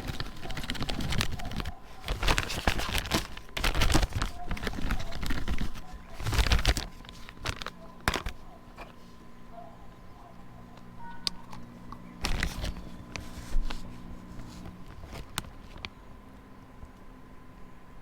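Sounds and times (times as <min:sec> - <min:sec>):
objects clicking and knocking: 0:00.0 - 0:09.0
rustling: 0:00.0 - 0:10.0, 0:10.9 - 0:16.0
faint low hum: 0:00.0 - 0:18.0.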